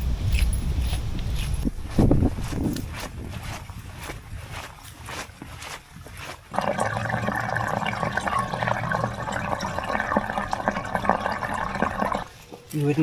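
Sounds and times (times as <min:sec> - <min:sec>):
running water trickling: 0:06.5 - 0:13.0.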